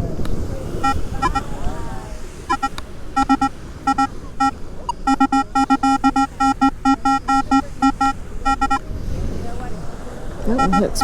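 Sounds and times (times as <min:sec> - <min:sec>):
metal detector short beeps: 0:00.8 - 0:01.4, 0:02.5 - 0:08.8.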